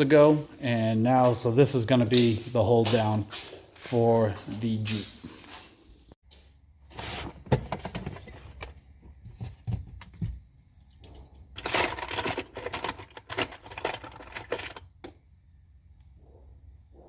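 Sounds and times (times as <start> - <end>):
metal hardware clinking and rattling: 11.0 - 15.2.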